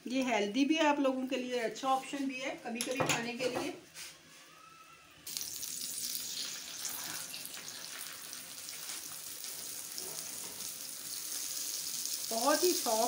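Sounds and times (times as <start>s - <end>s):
oil sizzling on a griddle: 5.3s - 13.0s.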